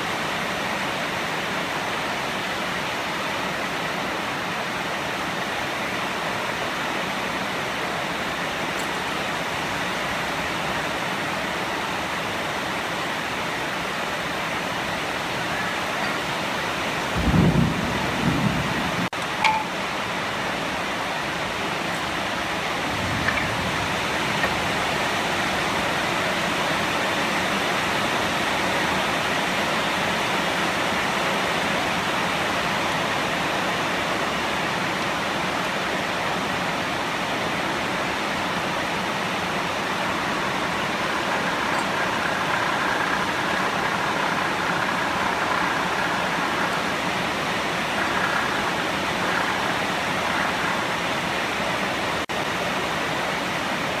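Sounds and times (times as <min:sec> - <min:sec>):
faint high whining tones: 0:07.8 - 0:17.9, 0:19.1 - 0:27.0, 0:37.8 - 0:52.3
wood lathe hissing: 0:38.5 - 0:52.0.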